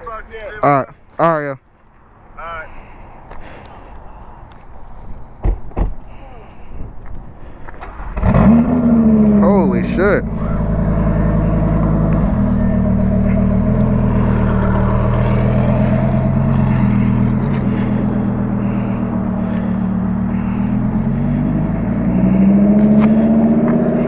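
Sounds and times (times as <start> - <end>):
motorcycle engine running: 9.2 - 24.0.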